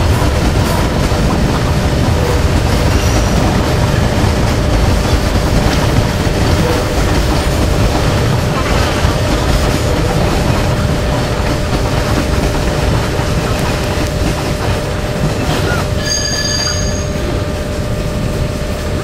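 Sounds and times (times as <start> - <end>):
steady hum: 0.0 - 16.0, 16.9 - 19.0
train wheels rumbling on rail: 0.0 - 19.0
high-pitched wheel squeal: 15.5 - 17.4.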